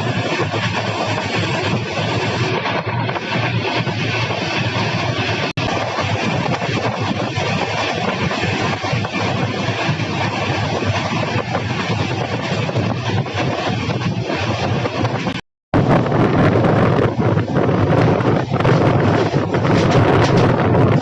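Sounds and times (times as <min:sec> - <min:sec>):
passenger train rumbling: 0:00.0 - 0:21.0.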